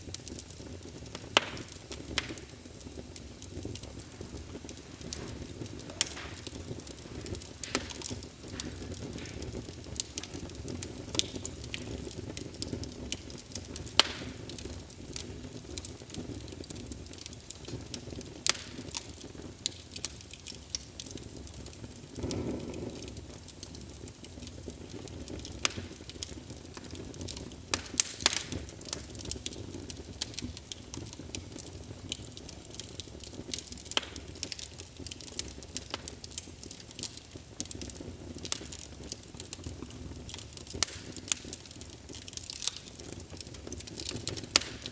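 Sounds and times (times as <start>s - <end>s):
whoosh of flame: 0.0s - 36.2s
fire rumbling: 0.0s - 44.9s
logs crackling and popping: 0.0s - 44.9s.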